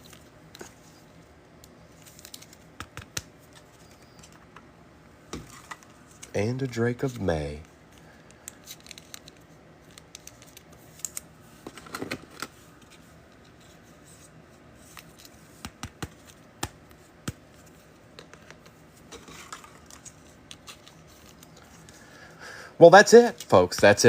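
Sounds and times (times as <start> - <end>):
card edges clicking and tapping: 2.2 - 4.6, 15.0 - 21.6.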